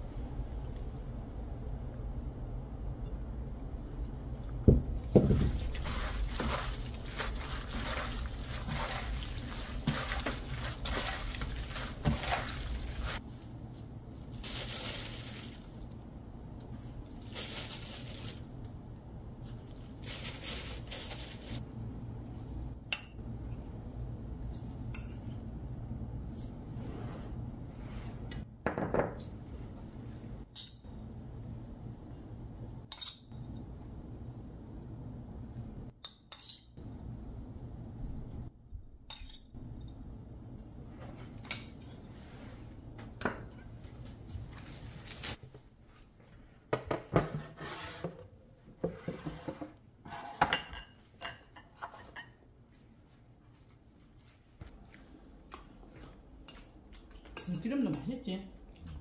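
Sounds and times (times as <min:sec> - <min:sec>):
dishes and utensils clinking: 0:50.2 - 0:52.4.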